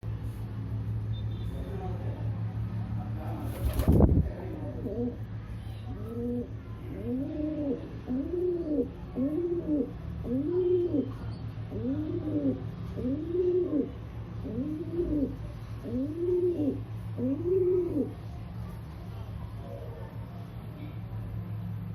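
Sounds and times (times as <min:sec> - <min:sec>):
steady low hum: 0:00.0 - 0:21.9
pigeon cooing: 0:04.6 - 0:05.2, 0:05.9 - 0:18.2.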